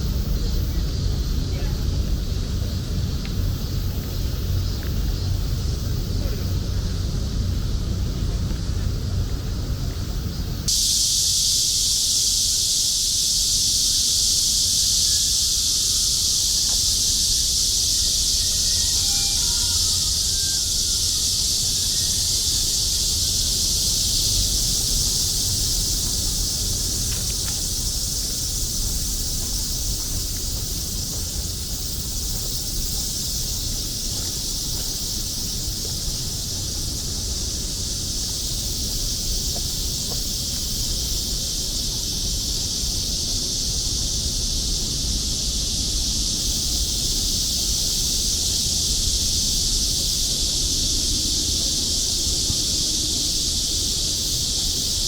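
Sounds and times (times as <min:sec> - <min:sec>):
low background rumble: 0:00.0 - 0:10.8
cicadas buzzing: 0:00.0 - 0:55.0.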